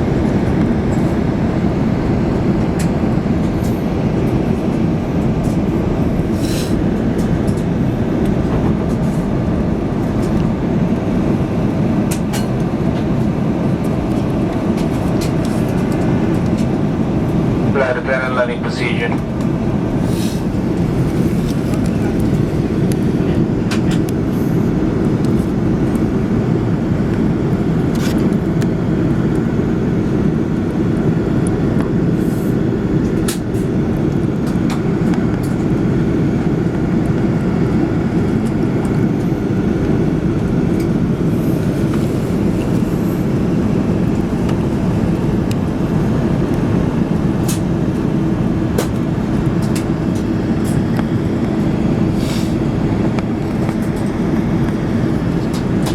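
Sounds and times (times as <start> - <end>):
aircraft cabin engine drone: 0.0 - 55.9.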